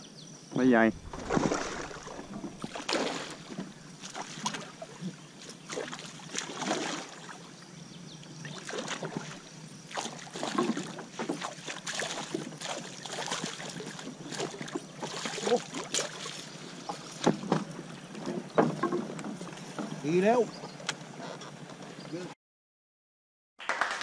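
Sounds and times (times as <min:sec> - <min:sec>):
water sloshing: 0:00.8 - 0:07.6, 0:08.3 - 0:21.8
fish thrashing and splashing: 0:01.0 - 0:07.4, 0:08.5 - 0:17.4.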